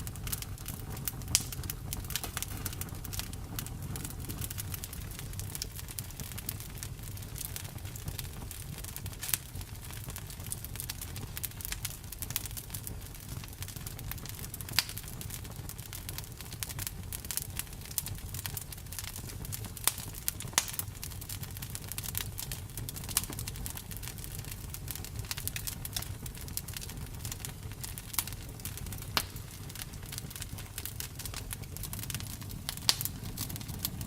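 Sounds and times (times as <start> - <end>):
campfire crackling: 0.0 - 34.0
fire popping: 0.0 - 34.0.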